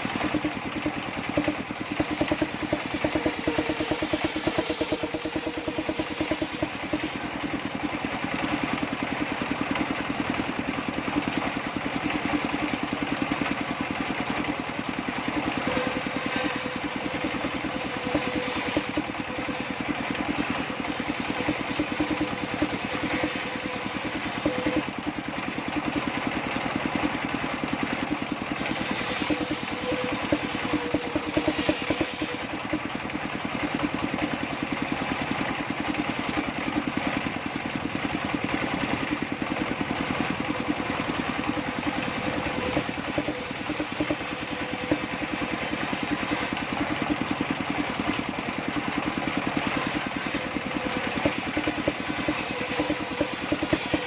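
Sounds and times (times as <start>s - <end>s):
thin whine: 0.0s - 7.3s, 15.3s - 24.9s, 28.5s - 32.7s, 39.8s - 46.9s, 49.6s - 54.0s
table saw cutting wood: 0.0s - 7.4s, 15.3s - 25.0s, 28.5s - 32.7s, 39.8s - 47.0s, 49.6s - 54.0s.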